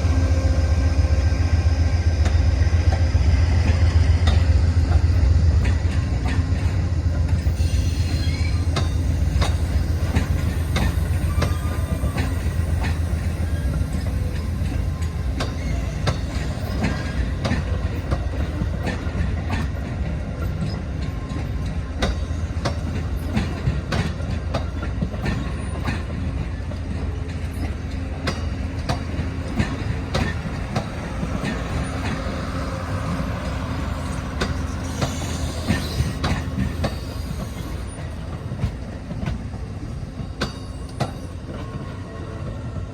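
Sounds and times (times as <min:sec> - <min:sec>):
train low rumble: 0:00.0 - 0:42.9
wheels clicking over rail joints: 0:13.6 - 0:42.0.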